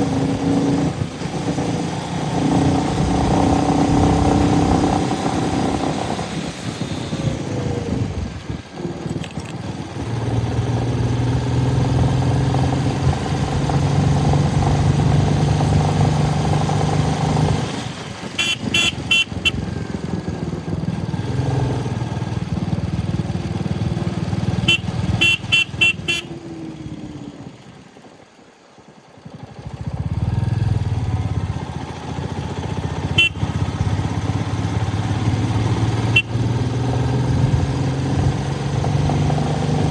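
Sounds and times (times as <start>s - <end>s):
motorcycle engine running: 0.0s - 39.9s
horn beeping: 18.3s - 19.8s, 24.5s - 26.4s, 33.1s - 33.7s, 36.0s - 36.6s.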